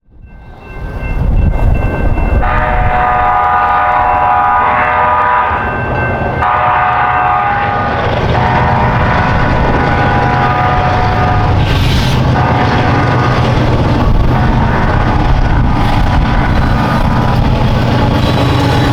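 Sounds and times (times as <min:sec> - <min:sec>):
passing train rumble: 0:00.0 - 0:18.9
locomotive horn blasts: 0:02.4 - 0:05.7, 0:06.4 - 0:11.6.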